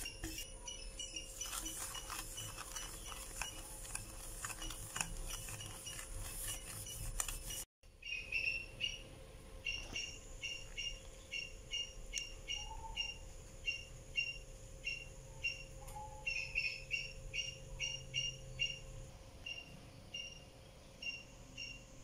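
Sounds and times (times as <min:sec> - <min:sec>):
bird chirping: 0:08.0 - 0:21.9.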